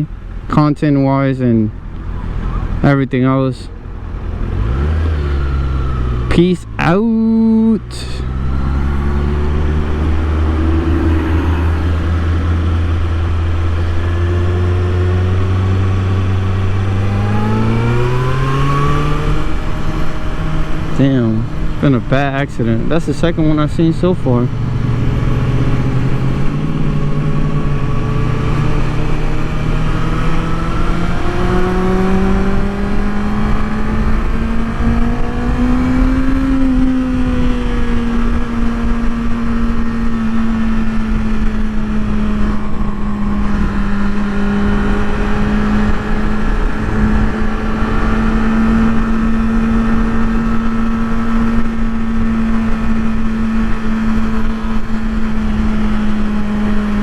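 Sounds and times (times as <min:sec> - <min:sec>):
motorcycle engine accelerating: 0:03.7 - 0:57.0
wind noise rushing: 0:08.2 - 0:15.7.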